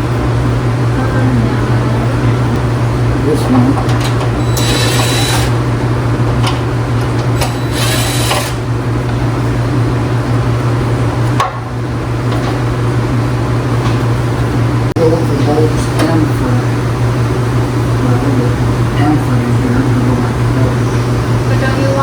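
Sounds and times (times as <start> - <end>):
low hum: 0.0 - 22.0
power drill whine: 4.0 - 5.6, 7.3 - 8.7.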